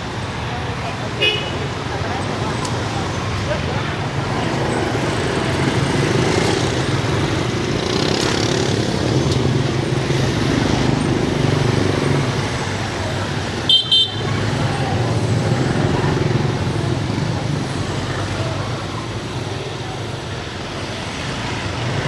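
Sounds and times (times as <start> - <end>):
city traffic engines running: 0.0 - 22.0
vehicle horn double beep: 13.7 - 14.3.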